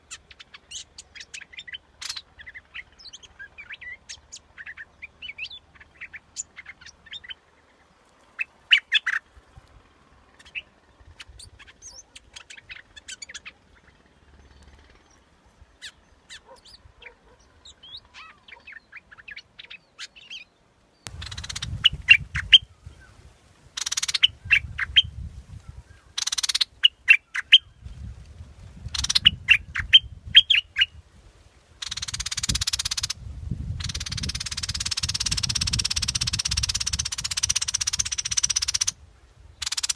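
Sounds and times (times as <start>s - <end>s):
bird song whistles and chirps: 8.7s - 9.2s, 21.1s - 28.1s, 28.8s - 31.0s, 31.8s - 38.9s.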